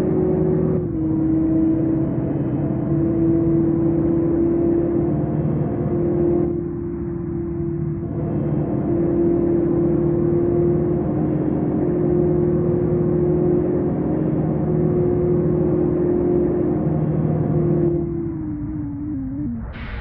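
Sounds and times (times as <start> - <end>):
road noise: 13.9 - 20.0
car engine humming: 15.0 - 20.0.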